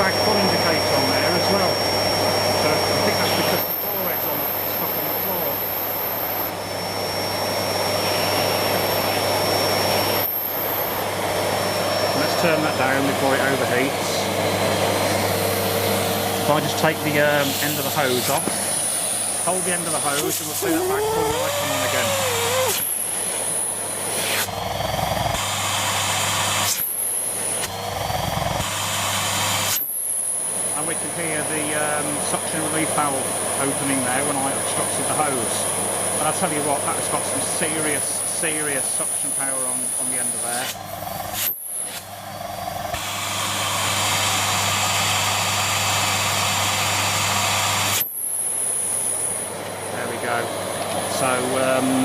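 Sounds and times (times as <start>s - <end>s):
vacuum cleaner running: 0.0s - 52.0s
high steady whistle: 20.0s - 23.0s.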